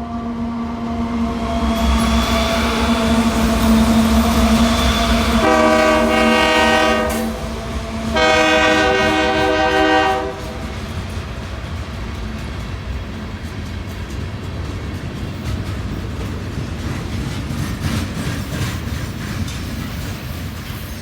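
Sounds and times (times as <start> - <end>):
locomotive air horn blasts: 5.1 - 10.8.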